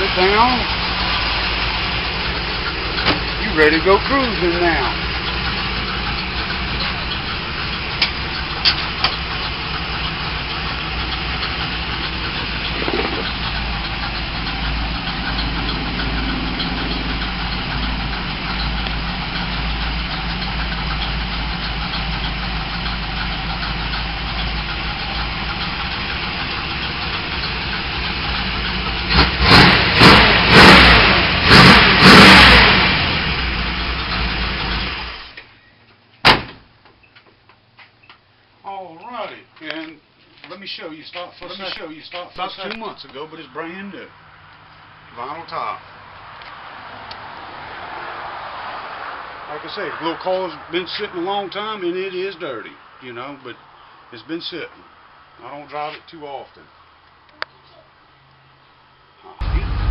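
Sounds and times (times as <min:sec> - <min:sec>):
car engine idling and revving: 0:00.0 - 0:35.5, 0:44.1 - 0:51.1, 0:58.5 - 0:59.9.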